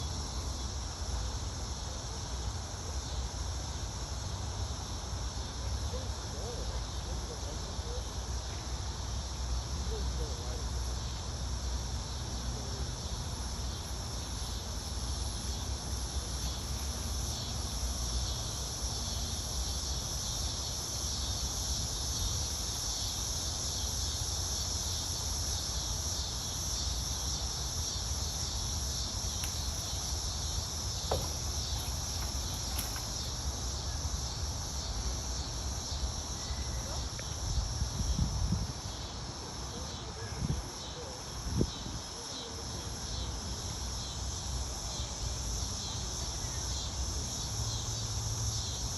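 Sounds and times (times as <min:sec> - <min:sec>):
insects chorus: 0:00.0 - 0:48.9.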